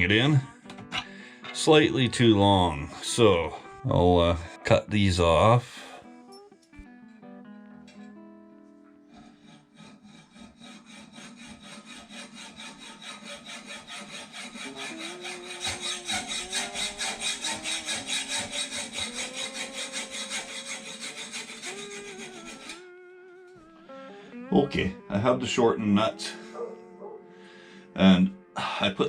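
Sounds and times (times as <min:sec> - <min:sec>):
hacksaw cutting bolt: 0:09.4 - 0:22.8.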